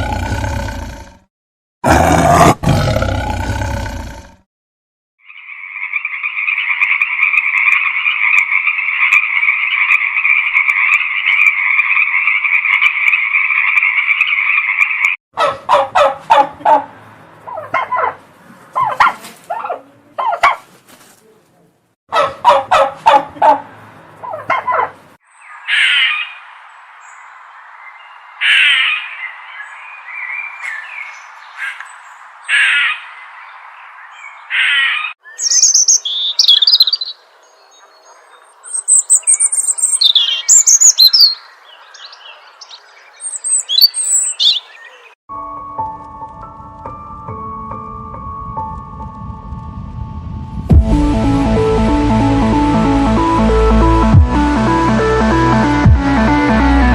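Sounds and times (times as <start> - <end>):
songbird chirping and trilling: 5.2 - 15.2, 24.2 - 45.2
loud harsh bird calls: 24.2 - 26.5, 28.4 - 33.3, 34.1 - 45.2
bird rapid pulsing calls: 37.8 - 45.2.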